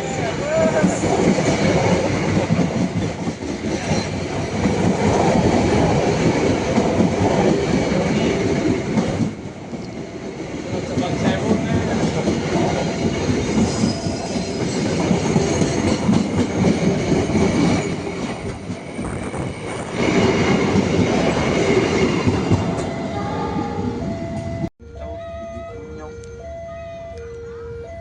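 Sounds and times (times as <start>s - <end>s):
train clickety-clack over rail joints: 0.0s - 23.0s
train wheel squeal: 3.7s - 4.7s, 11.0s - 16.2s.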